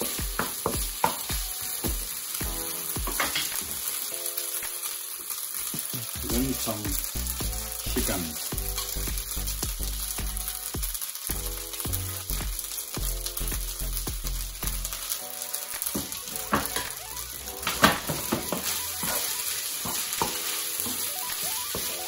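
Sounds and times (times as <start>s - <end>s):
noodles sizzling in a frying pan: 0.0s - 22.0s.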